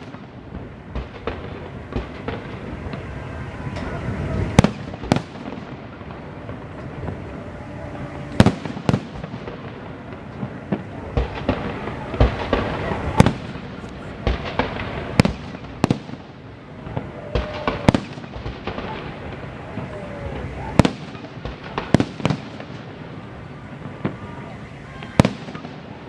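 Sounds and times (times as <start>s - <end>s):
steady crackling: 0.0s - 17.0s
fireworks bangs and pops: 10.8s - 19.5s.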